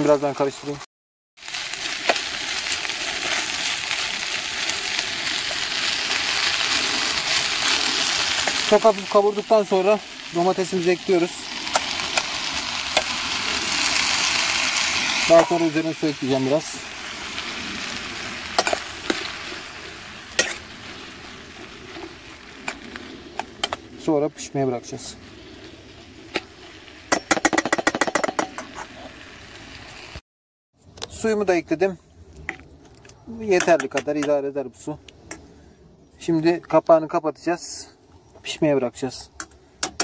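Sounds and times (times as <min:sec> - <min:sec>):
vegetables sizzling in oil: 0:01.4 - 0:30.2.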